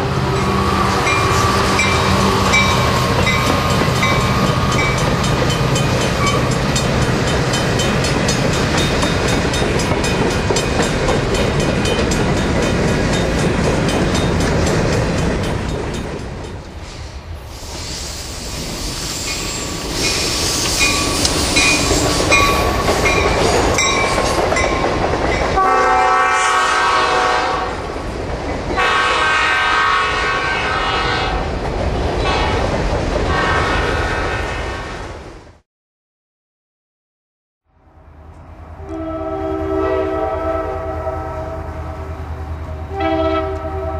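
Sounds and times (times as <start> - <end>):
wheels clattering over rail joints: 1.1 - 16.7, 19.4 - 25.6
locomotive air horn: 25.6 - 27.8, 28.8 - 31.5, 38.8 - 43.9.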